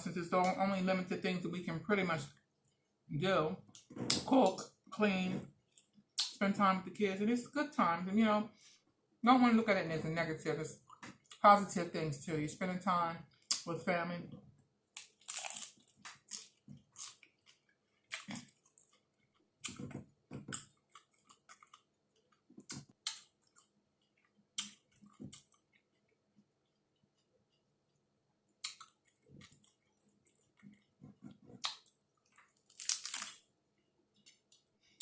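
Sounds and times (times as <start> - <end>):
person chewing food: 14.5 - 35.0
wet clicks and crackles: 28.5 - 33.4.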